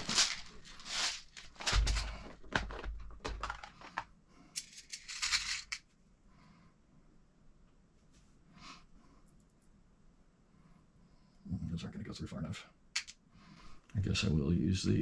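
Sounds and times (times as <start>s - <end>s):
metal screws clicking and rattling: 4.6s - 5.8s, 13.0s - 13.2s.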